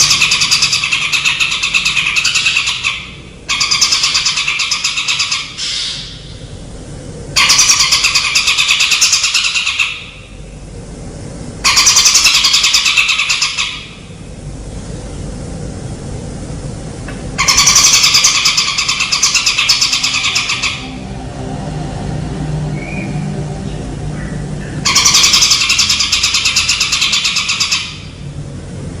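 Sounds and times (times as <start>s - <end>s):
steady low hum: 0.0s - 29.0s
songbird buzzy trills: 17.4s - 21.5s, 22.3s - 28.6s.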